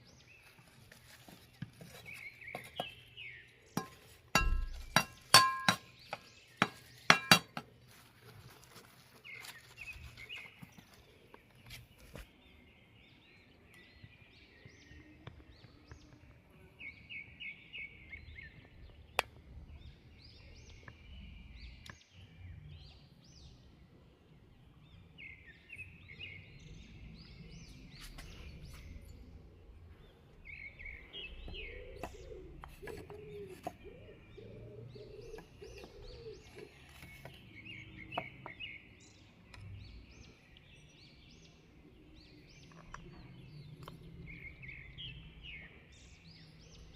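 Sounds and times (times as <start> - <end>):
small birds chirping and trilling: 0.0 - 46.9
lower slower bird call: 30.4 - 41.7.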